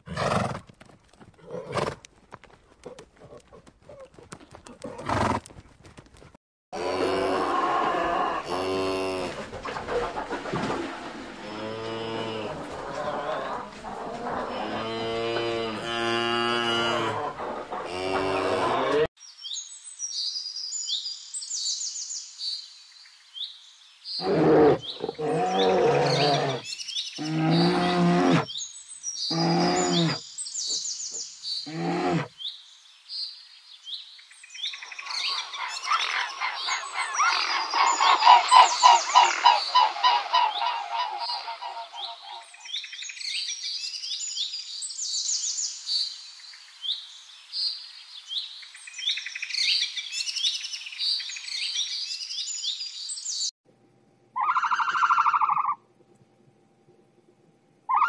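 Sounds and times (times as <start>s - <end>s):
donkey braying: 11.4s - 19.1s, 24.2s - 26.6s, 29.3s - 30.2s, 31.7s - 32.3s.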